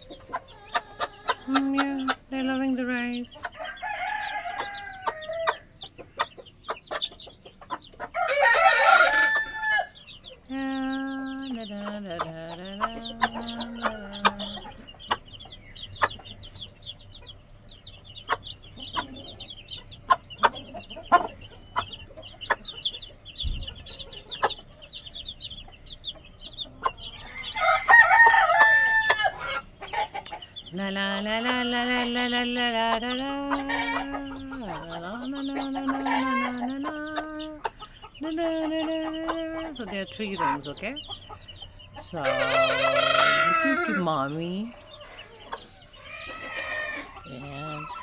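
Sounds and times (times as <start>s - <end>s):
chickens clucking: 0.0s - 48.0s
chicks peeping: 0.0s - 48.0s
chicken squawks: 45.0s - 47.3s.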